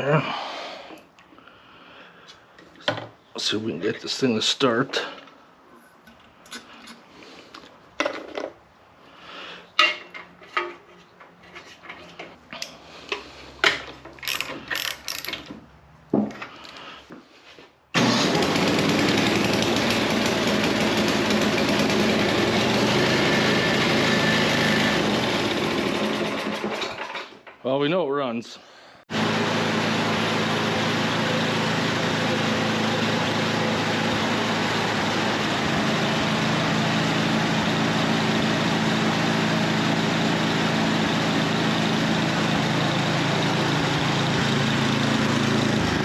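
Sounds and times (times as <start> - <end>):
hand tools clicking and knocking: 9.8 - 16.8
small gasoline engine running: 18.0 - 27.3, 29.1 - 46.0.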